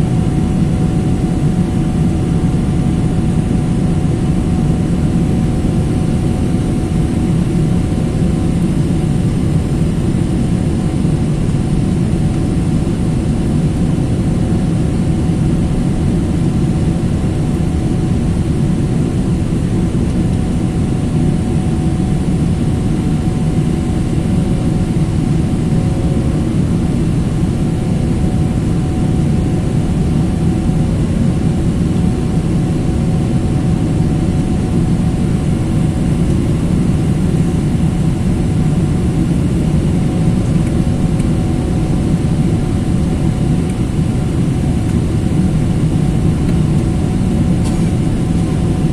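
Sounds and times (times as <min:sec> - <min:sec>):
airliner cabin engine rumble: 0:00.0 - 0:48.9.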